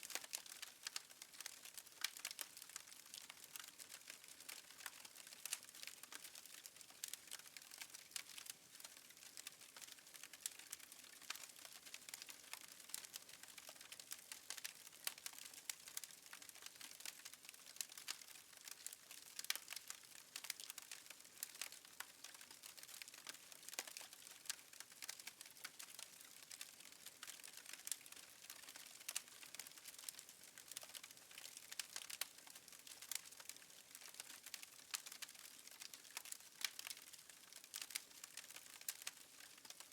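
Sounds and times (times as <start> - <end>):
fireplace fire crackling: 0.1 - 39.9.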